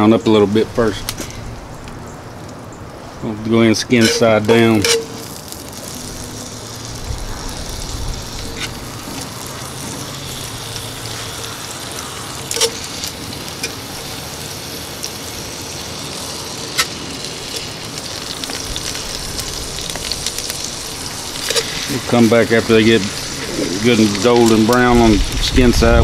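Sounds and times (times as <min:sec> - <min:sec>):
chicken sizzling in butter: 0:03.5 - 0:26.0
metal tongs clinking on pot: 0:03.9 - 0:05.3, 0:12.5 - 0:12.8, 0:13.6 - 0:13.8.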